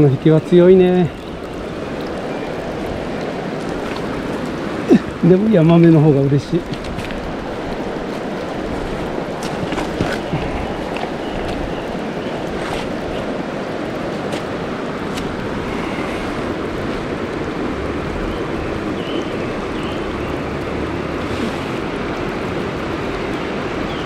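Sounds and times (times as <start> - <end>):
river rushing: 0.0 - 24.0.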